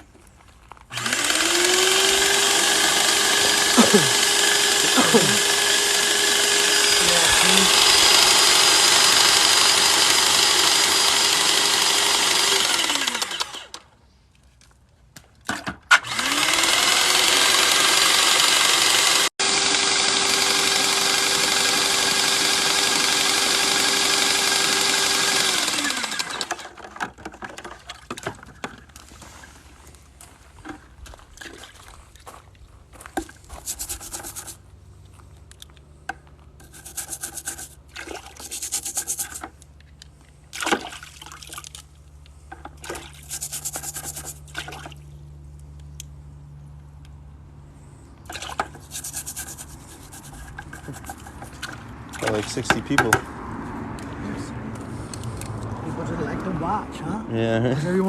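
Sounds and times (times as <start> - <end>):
paint sprayer pump whine and hiss: 0.9 - 13.8, 16.0 - 26.5, 33.5 - 34.6, 36.6 - 37.8, 38.4 - 39.5, 43.2 - 44.5, 48.6 - 51.6.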